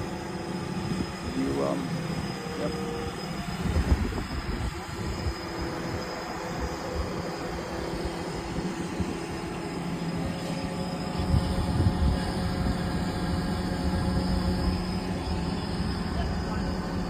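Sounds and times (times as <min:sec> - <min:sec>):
crane engine rumbling: 0:00.0 - 0:17.0
faint held whine: 0:00.0 - 0:17.0.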